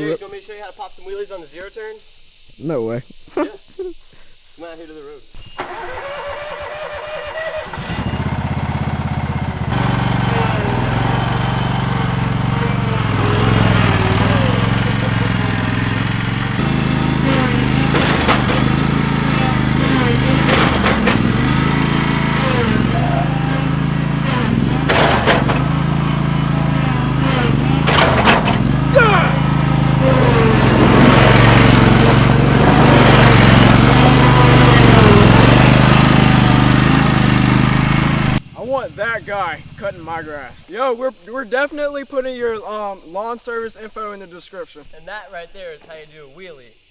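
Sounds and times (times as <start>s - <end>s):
riding mower engine running: 5.4s - 40.7s.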